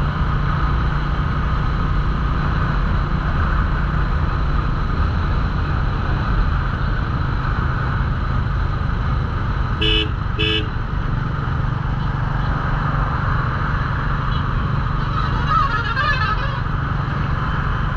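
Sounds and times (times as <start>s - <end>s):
horn short beeps: 9.8s - 10.7s.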